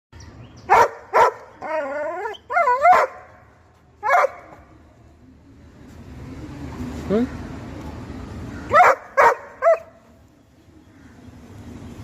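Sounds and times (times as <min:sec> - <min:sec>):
dog barking: 0:00.7 - 0:01.5, 0:02.6 - 0:03.3, 0:04.0 - 0:04.6, 0:08.7 - 0:09.9.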